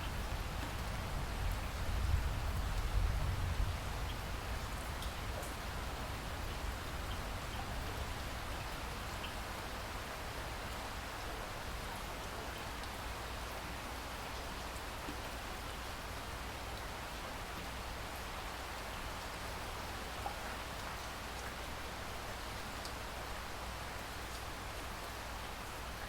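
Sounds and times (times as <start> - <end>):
faint raindrop ticks: 0.0 - 21.7, 22.7 - 23.1, 24.0 - 25.6
steady rain hiss: 0.0 - 26.0.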